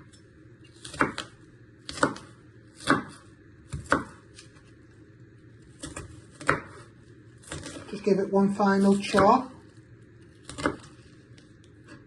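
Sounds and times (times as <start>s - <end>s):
knife chopping on board: 0.8s - 4.5s, 5.8s - 7.9s, 8.9s - 9.4s, 10.4s - 11.0s.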